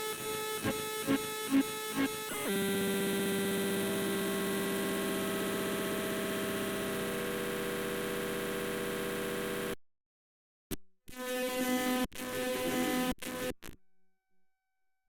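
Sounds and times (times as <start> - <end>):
harsh electronic buzzing drone: 0.4 - 9.8.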